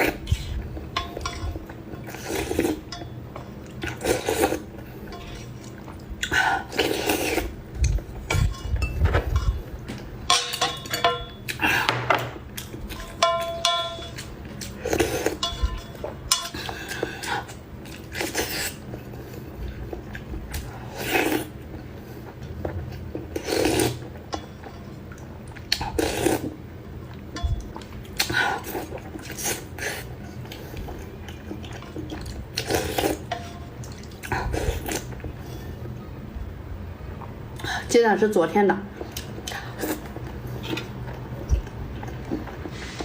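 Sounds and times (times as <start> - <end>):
utensils clinking against bowl: 0.9 - 4.3, 8.2 - 18.4
person slurping soup: 6.2 - 7.6.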